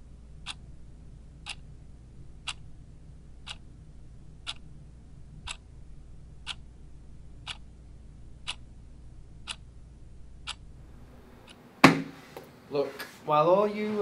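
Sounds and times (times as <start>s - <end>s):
low steady hum: 0.0s - 14.0s
clock ticking: 0.3s - 0.7s, 1.4s - 1.7s, 2.4s - 2.8s, 3.4s - 3.8s, 4.4s - 4.7s, 5.4s - 5.7s, 6.4s - 6.8s, 7.4s - 8.7s, 9.4s - 9.7s, 10.4s - 10.7s
hands slapping on tabletop: 11.8s - 12.5s.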